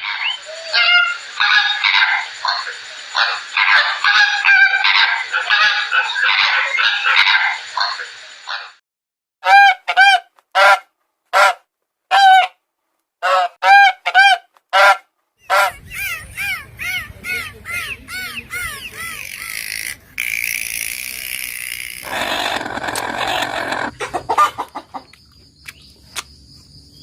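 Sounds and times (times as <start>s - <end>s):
background noise: 9.4s - 27.0s
geese honking: 13.2s - 20.4s.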